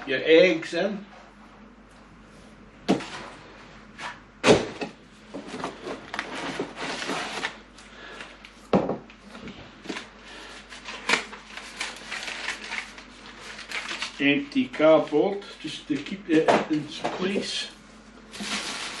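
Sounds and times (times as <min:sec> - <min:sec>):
cardboard scraping and rustling: 0:05.3 - 0:07.6.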